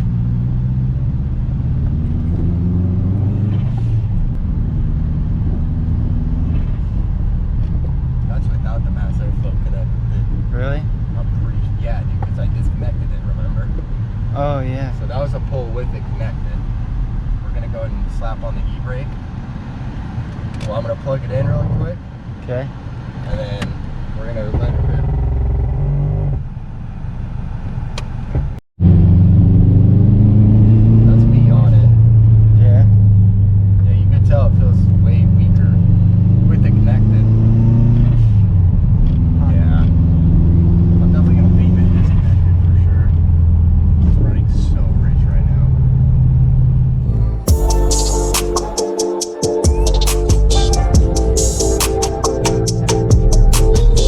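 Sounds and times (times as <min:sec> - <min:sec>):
car engine running: 0:41.7 - 0:48.8, 0:49.6 - 0:54.0.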